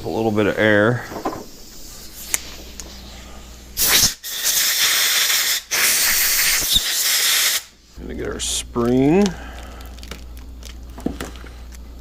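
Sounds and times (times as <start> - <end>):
compressed air hissing blasts: 1.4 - 7.9.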